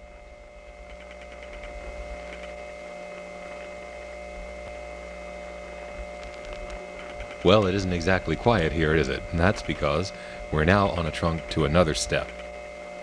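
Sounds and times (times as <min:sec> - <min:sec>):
dial-tone-like tones: 0:00.0 - 0:13.0
telephone line hum: 0:00.0 - 0:13.0
faint line clicks: 0:06.0 - 0:07.8.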